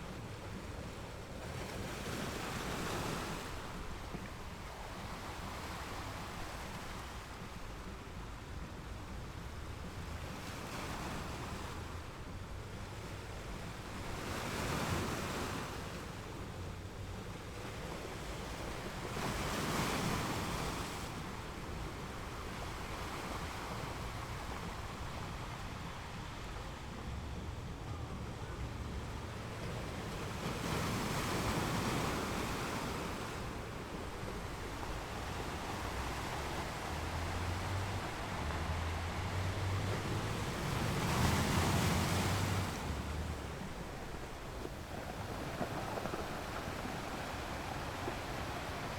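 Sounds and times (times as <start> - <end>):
sea waves surging: 9.8 - 48.9
wind buffeting microphone: 16.3 - 48.9.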